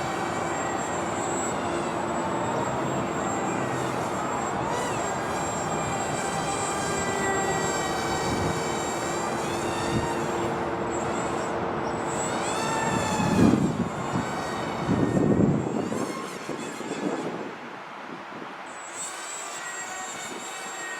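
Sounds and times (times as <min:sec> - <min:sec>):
electric motors whining: 0:00.0 - 0:17.5
wind rumbling on microphone: 0:04.7 - 0:10.7, 0:12.6 - 0:18.6.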